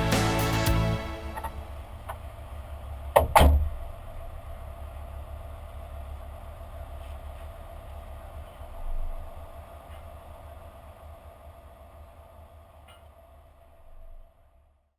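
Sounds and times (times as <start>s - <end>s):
diesel engine rumbling: 0.0s - 3.1s.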